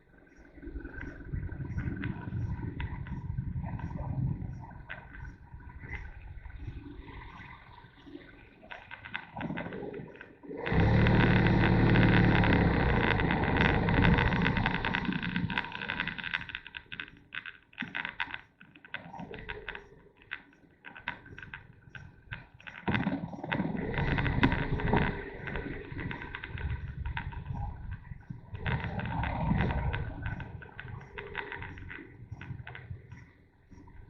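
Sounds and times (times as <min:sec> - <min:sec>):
wind buffeting microphone: 0:00.7 - 0:08.0, 0:23.4 - 0:34.0
motorcycle engine running: 0:10.7 - 0:16.1.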